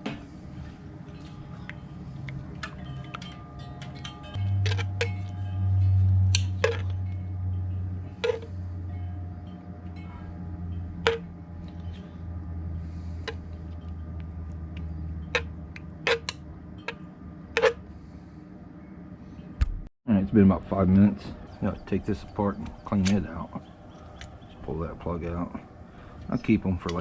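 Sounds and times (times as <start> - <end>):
steady low hum: 0.0 - 27.0
ringing chime-like strikes: 1.1 - 12.4.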